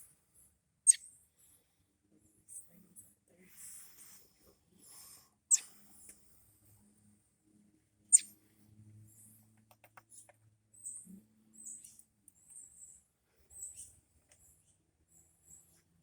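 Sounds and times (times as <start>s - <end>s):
robin calling: 5.5s - 5.8s, 8.1s - 8.3s.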